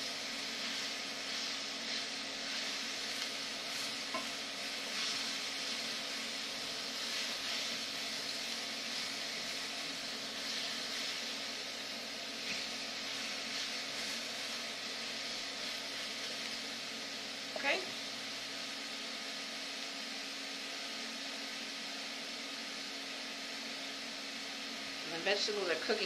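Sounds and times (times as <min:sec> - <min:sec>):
spatula stirring: 0:00.0 - 0:16.6
vegetables sizzling in a frying pan: 0:00.0 - 0:26.0.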